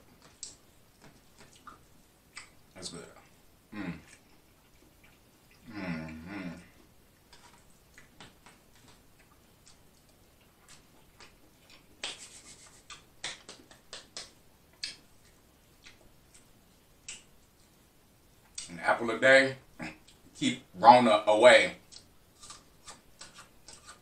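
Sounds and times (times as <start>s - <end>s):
chewing and lip-smacking: 0.2s - 2.6s, 4.0s - 17.7s.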